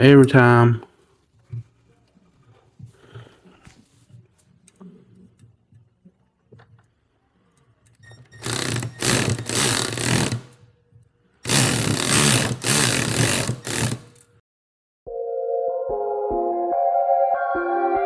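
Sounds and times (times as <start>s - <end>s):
small power tool motor running: 8.4s - 10.5s, 11.5s - 14.2s.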